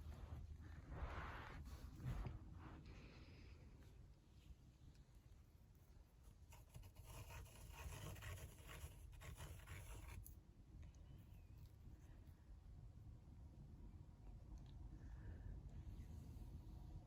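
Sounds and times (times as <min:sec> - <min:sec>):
faint scratching: 0:06.2 - 0:10.4.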